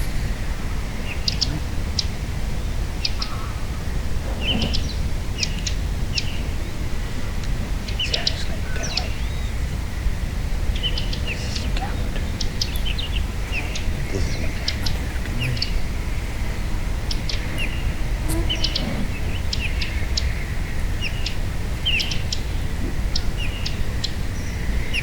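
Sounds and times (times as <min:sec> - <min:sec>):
small birds chirping: 0:00.0 - 0:25.0
steady low rumble: 0:00.0 - 0:25.0.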